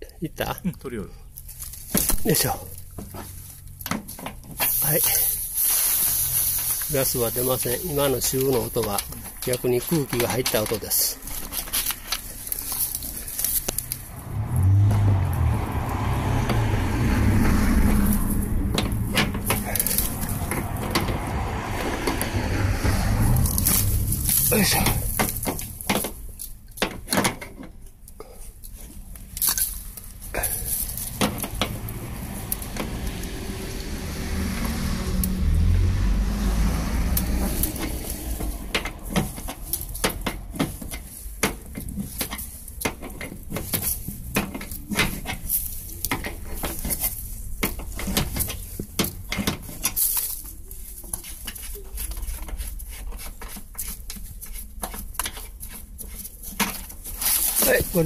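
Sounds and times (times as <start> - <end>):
low rumble: 13.8 - 25.9.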